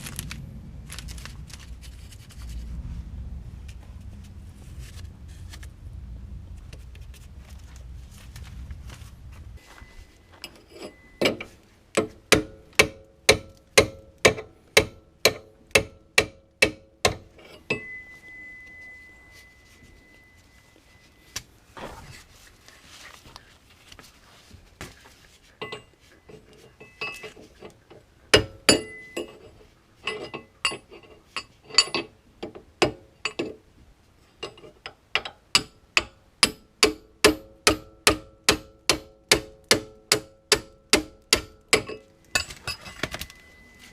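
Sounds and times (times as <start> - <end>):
hammer striking metal: 10.4 - 19.0, 28.3 - 29.4, 35.2 - 43.0.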